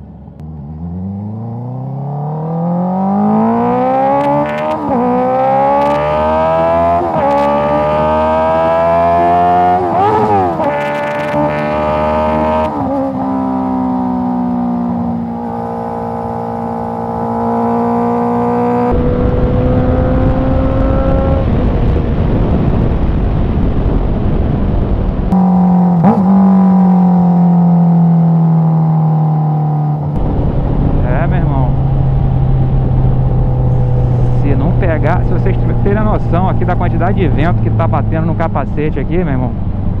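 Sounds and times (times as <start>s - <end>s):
motorcycle engine revving: 0.0s - 23.2s, 25.2s - 40.0s
rushing wind noise: 18.0s - 26.3s, 30.0s - 40.0s.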